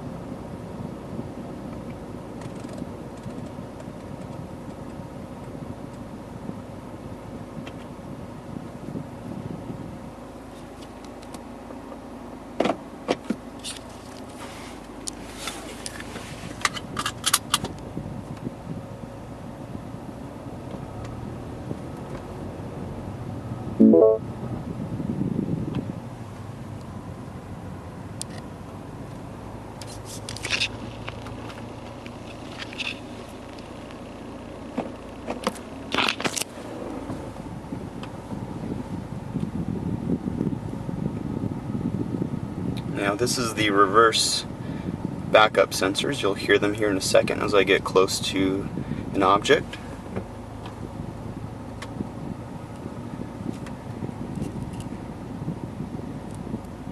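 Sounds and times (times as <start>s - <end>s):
car engine and cabin hum: 0.0s - 56.9s.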